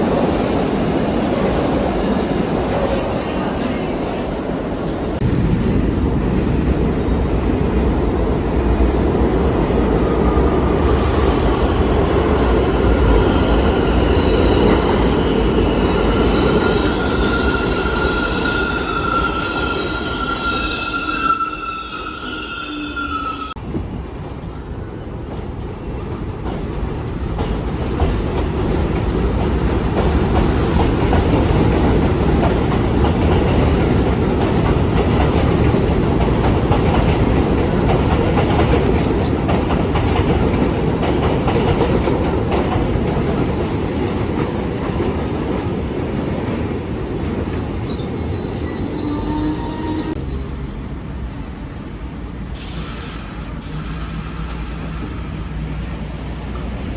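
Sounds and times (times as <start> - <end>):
train wheels rumbling on rail: 0.0 - 56.9
high wheel squeal: 12.7 - 23.6, 47.6 - 50.2.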